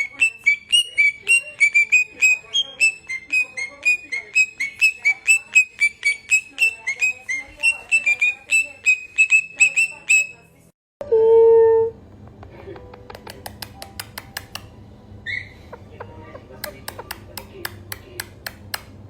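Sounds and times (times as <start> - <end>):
parrot whistling sharp notes: 0.0 - 10.5.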